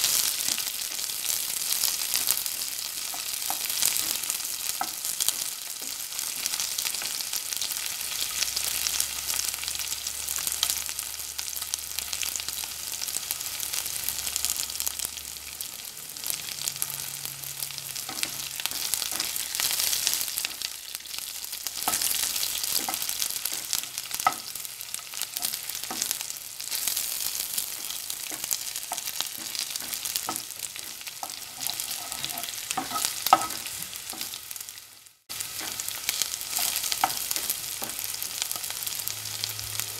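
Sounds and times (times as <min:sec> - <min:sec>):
onions sizzling in hot oil: 0:00.0 - 0:39.9
spatula scraping and tapping pan: 0:02.9 - 0:07.2, 0:17.9 - 0:20.7, 0:21.7 - 0:34.4, 0:35.4 - 0:38.7.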